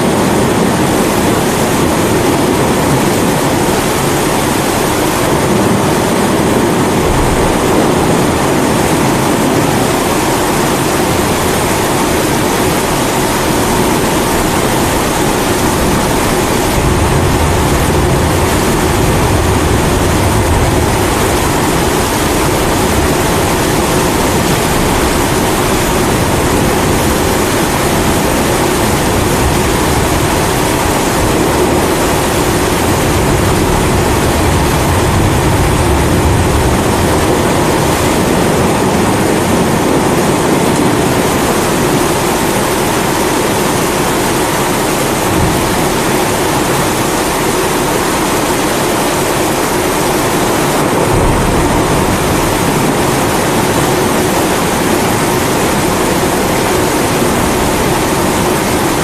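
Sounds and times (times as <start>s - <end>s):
continuous rain: 0.0s - 59.0s
low rumble: 6.4s - 10.5s, 12.6s - 38.4s, 50.3s - 58.8s.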